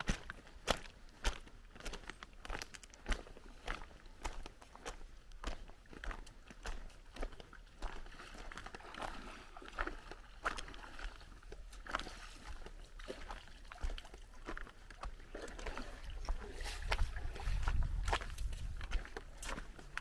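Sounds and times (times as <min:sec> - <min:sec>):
footsteps crunching on beach: 0:00.0 - 0:20.0
sea wash: 0:07.2 - 0:18.3.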